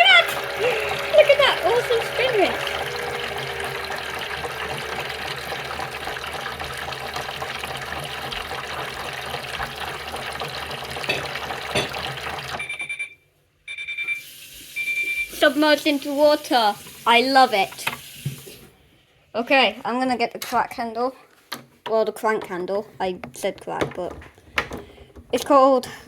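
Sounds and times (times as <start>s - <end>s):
thin high tone: 0.0s - 5.1s
toy washing machine motor spinning: 0.0s - 13.1s, 14.0s - 18.6s.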